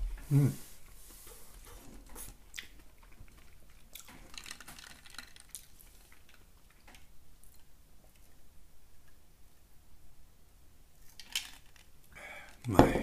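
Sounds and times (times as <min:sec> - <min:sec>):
person chewing food: 0:02.2 - 0:08.4.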